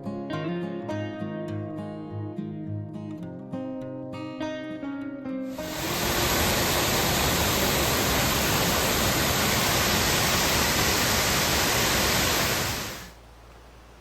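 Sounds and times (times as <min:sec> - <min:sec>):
water rushing over waterfall: 0:05.6 - 0:13.2.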